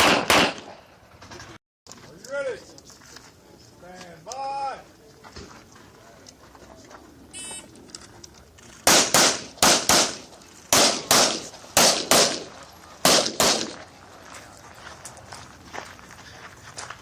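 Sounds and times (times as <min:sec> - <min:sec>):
pistol shots in quick pairs: 0:00.0 - 0:00.8, 0:08.8 - 0:13.8.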